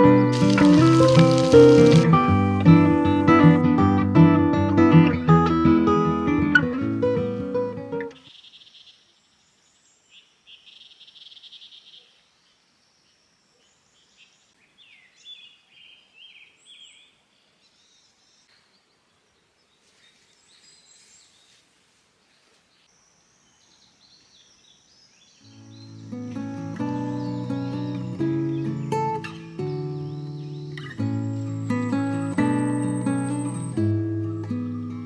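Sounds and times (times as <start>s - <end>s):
guitar music: 0.0s - 8.1s, 25.6s - 35.0s
birds chirping and trilling: 0.3s - 2.0s, 22.3s - 34.5s.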